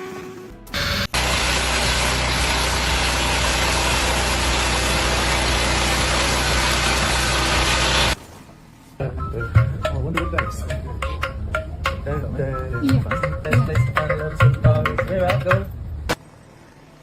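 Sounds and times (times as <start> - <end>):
machine running loudly: 0.7 - 8.2.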